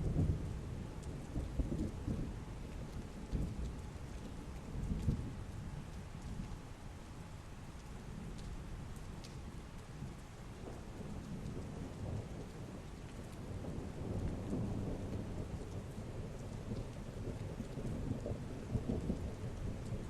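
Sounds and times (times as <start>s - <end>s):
low thunder rumble: 0.0s - 5.9s, 10.0s - 20.0s
heavy rain falling: 0.0s - 20.0s.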